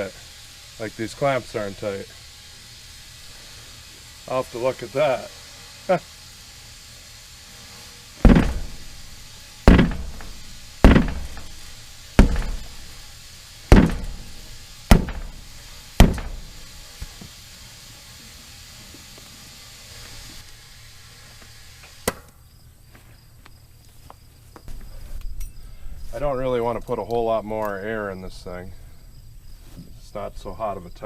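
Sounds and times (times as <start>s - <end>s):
sledgehammer thuds on tire rim: 8.2s - 13.0s, 13.7s - 16.7s.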